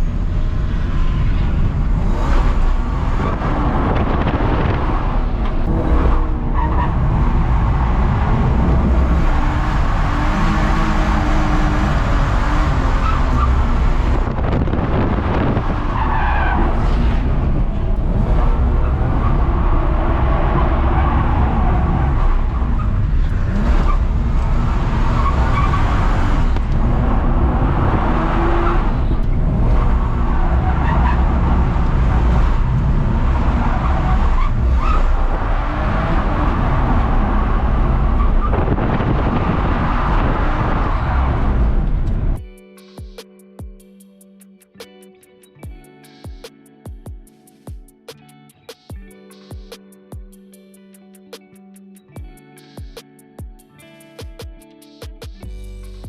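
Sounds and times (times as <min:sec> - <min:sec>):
car engine revving: 0:00.0 - 0:42.4
tyres skidding: 0:00.0 - 0:42.4.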